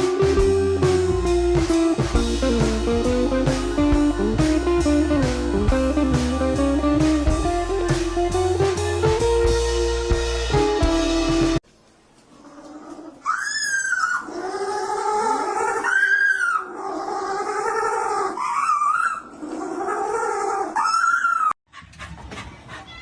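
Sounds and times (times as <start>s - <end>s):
dog howling: 12.7s - 21.6s.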